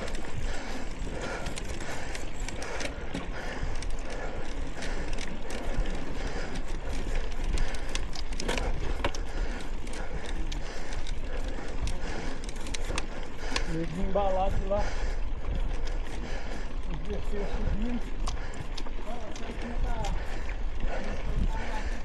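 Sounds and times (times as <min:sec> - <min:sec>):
ratchet-like clicks: 0:00.0 - 0:14.1
bicycle rattling on bumpy trail: 0:00.0 - 0:22.0
rushing wind: 0:00.0 - 0:22.0.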